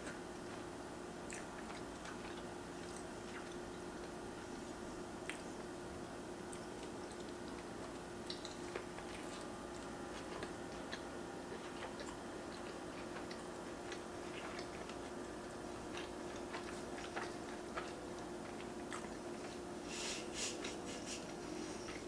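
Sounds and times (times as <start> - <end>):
person chewing: 0.0 - 5.7, 6.4 - 19.7
faint hum: 0.0 - 22.0.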